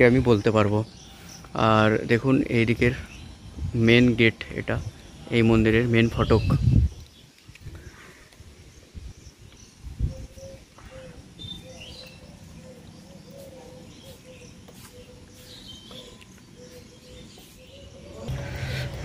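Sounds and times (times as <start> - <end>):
small birds chirping: 0.0 - 19.0
low rumble: 18.2 - 19.0.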